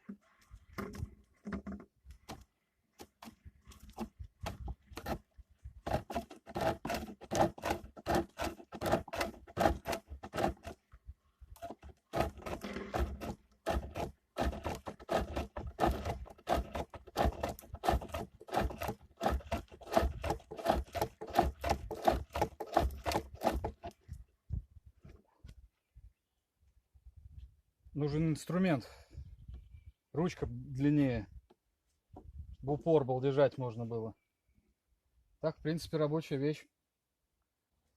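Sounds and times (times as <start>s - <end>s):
lathe tool scraping wood: 5.9s - 10.8s, 11.6s - 24.0s.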